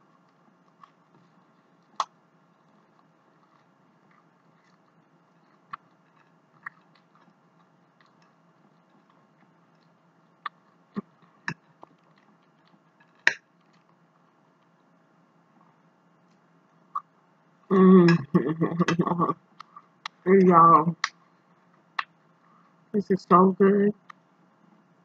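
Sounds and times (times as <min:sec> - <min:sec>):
person chewing food: 0:00.2 - 0:13.4.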